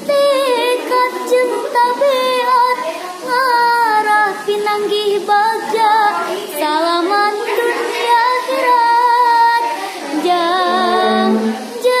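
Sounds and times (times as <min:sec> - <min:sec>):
girl singing with vibrato: 0:00.0 - 0:12.0
low steady note: 0:10.6 - 0:11.6.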